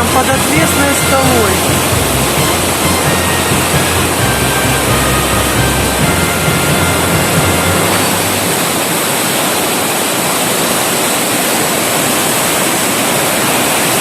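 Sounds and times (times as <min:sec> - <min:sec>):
river rushing over rocks: 0:07.4 - 0:14.0.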